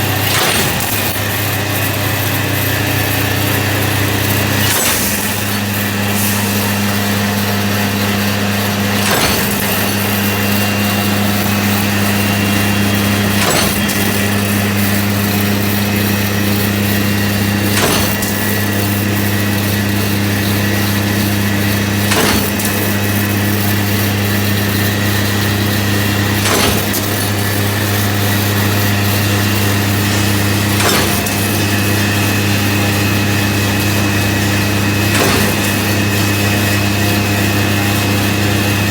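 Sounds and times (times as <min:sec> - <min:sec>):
machine motor hum: 0:00.0 - 0:38.9
wire cutting stroke: 0:08.8 - 0:19.0, 0:22.0 - 0:37.1.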